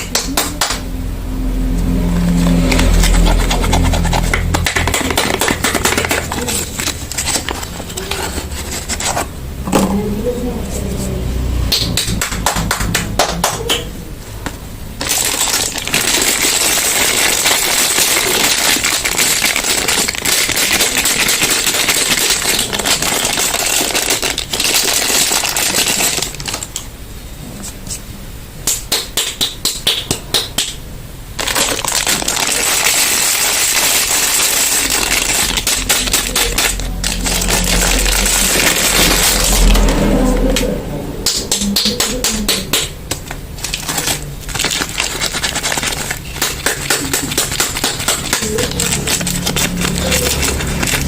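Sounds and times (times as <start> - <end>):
soap wrapper crackling: 2.7 - 9.3, 15.0 - 26.8, 31.4 - 40.1, 43.1 - 51.0.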